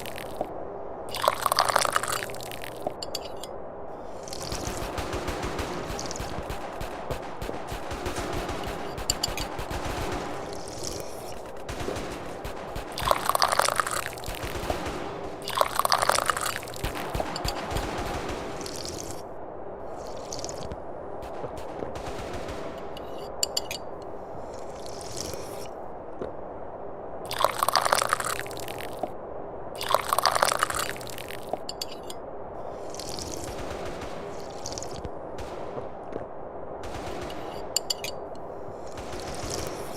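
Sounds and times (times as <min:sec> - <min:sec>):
steady background noise: 0:00.0 - 0:39.9
person slurping tea: 0:01.1 - 0:02.7.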